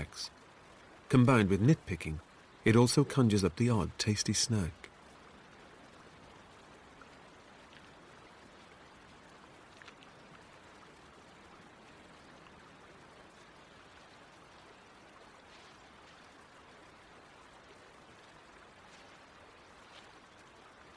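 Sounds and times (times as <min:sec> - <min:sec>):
stream running: 0:00.0 - 0:20.9
faint ticks: 0:06.5 - 0:13.5.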